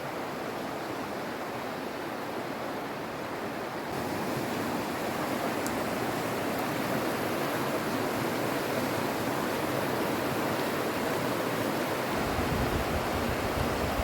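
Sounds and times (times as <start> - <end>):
water flowing: 0.0 - 14.0.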